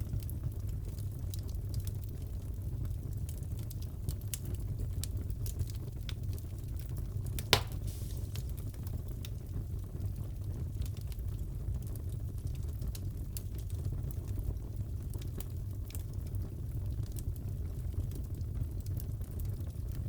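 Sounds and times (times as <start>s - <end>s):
fire rumbling: 0.0s - 20.0s
small fire crackles: 0.0s - 20.0s
sharp pop: 7.4s - 8.5s.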